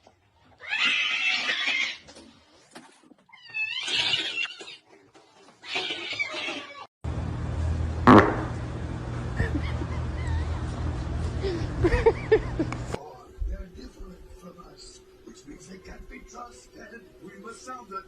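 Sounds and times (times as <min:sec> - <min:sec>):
cat meowing: 0:05.6 - 0:06.9.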